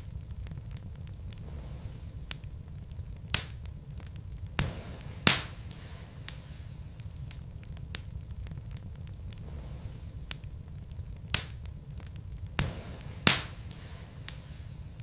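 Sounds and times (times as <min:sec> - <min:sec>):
logs popping: 0:00.0 - 0:15.0
wood fire crackling: 0:00.0 - 0:15.0
brief hiss: 0:04.6 - 0:07.1.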